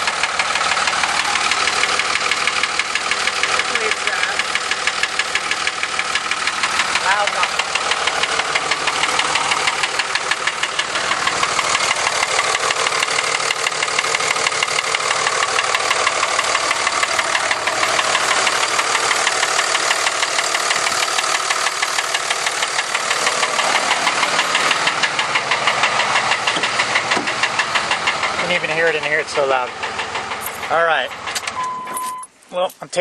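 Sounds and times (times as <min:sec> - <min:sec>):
diesel engine knocking: 0:00.0 - 0:31.8.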